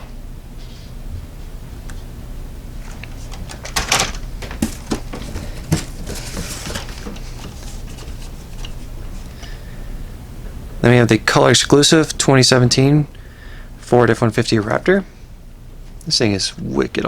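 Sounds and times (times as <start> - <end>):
rustling scrapes: 2.8 - 9.3
plastic packaging clicks and knocks: 2.9 - 8.8.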